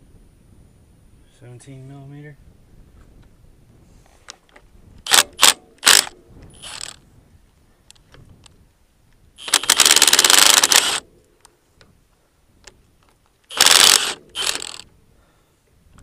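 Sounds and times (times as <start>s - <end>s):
power tool rapid clicking: 5.1s - 7.0s, 9.4s - 11.0s, 13.5s - 14.8s.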